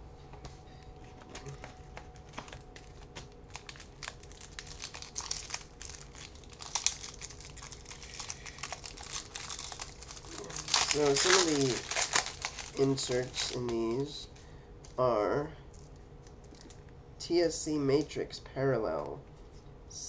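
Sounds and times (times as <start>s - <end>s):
wrapper crinkling: 2.0s - 14.1s.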